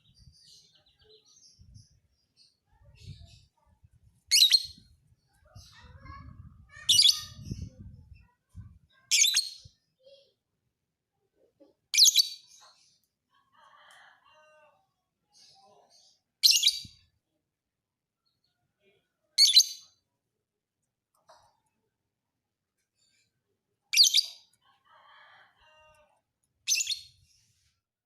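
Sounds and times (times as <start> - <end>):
bird shrill chirping: 4.3 - 4.9, 16.4 - 17.0, 24.0 - 24.4, 26.7 - 27.2.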